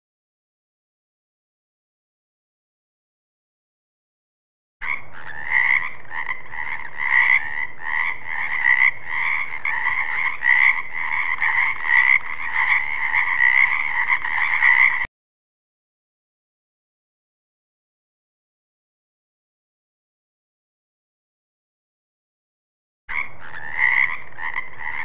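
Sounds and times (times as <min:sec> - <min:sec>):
frogs croaking: 0:04.8 - 0:15.1, 0:23.1 - 0:25.0.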